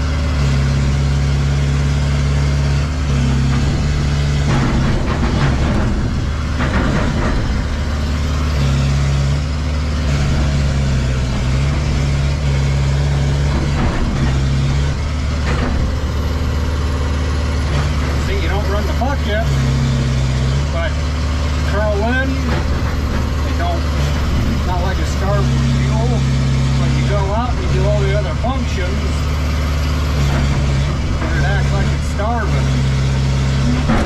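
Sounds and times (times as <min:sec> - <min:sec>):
machine engine running: 0:00.0 - 0:34.0
mechanical clatter: 0:03.0 - 0:08.9, 0:10.2 - 0:19.2, 0:22.2 - 0:29.3, 0:30.1 - 0:34.0.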